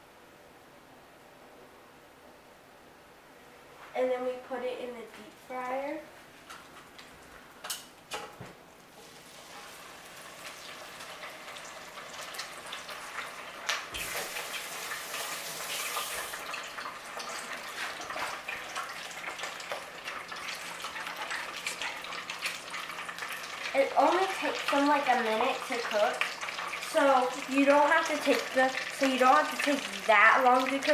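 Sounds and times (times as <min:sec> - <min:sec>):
food sizzling in deep fryer oil: 0:08.9 - 0:30.9.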